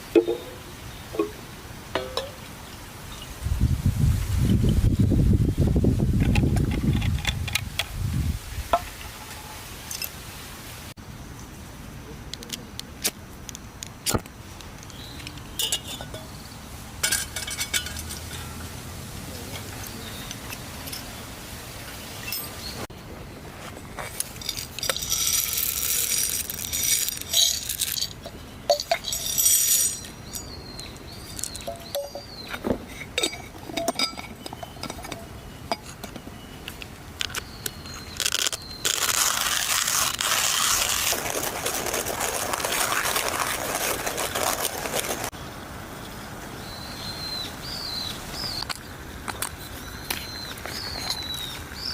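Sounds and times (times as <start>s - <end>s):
glass and metal clinks: 2.0s - 2.4s, 15.6s - 16.3s, 17.0s - 18.7s, 22.2s - 22.7s, 24.2s - 36.3s.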